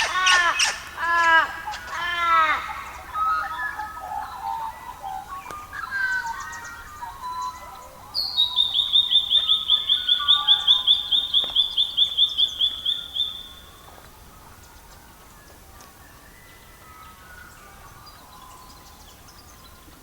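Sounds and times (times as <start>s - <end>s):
songbird trilling: 0.0s - 15.1s
soft low bird calls: 0.0s - 20.0s.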